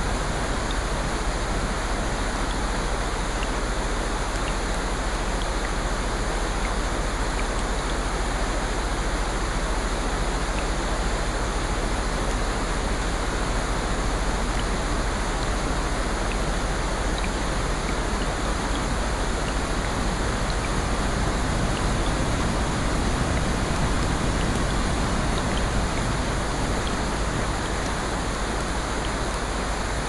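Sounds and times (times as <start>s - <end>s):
rain-like water rushing: 0.0s - 30.0s
faint small ticks: 4.3s - 5.8s.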